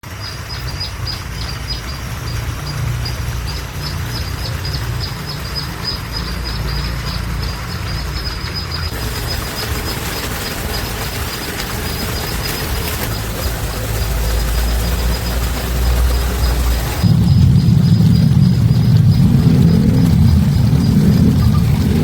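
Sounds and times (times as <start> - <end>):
wind on microphone: 15.7 - 22.0.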